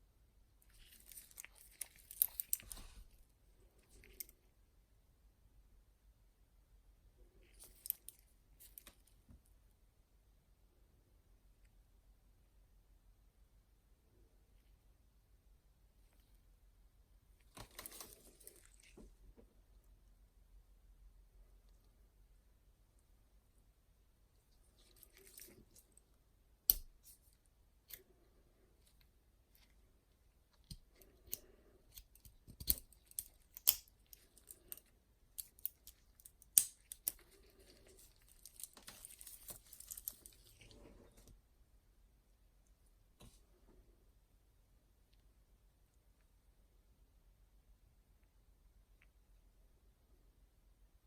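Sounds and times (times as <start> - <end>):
soft rustling of packaging: 0.6 - 4.6, 7.2 - 9.5, 17.3 - 20.0, 24.3 - 41.5.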